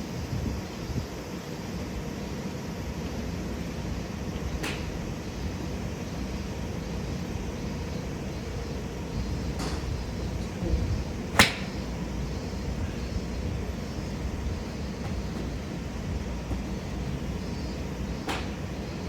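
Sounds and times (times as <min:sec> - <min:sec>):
golf clubs striking balls: 0:04.6 - 0:05.1, 0:09.2 - 0:19.0.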